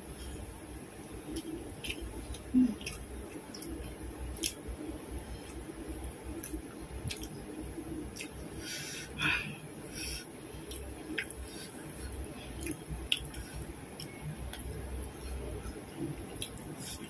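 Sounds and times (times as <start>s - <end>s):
chewing with wet lip smacks: 1.2s - 4.7s, 5.4s - 7.5s, 8.1s - 8.4s, 10.6s - 17.0s.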